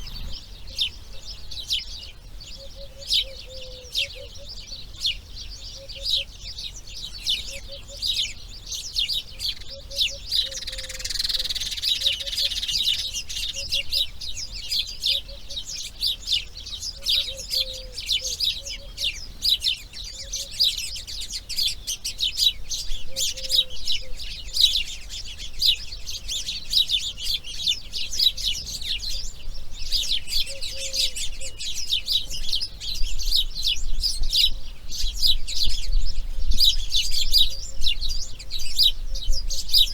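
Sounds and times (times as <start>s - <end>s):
faint low bird call: 0.0s - 4.6s
birds chirping chorus: 0.0s - 39.9s.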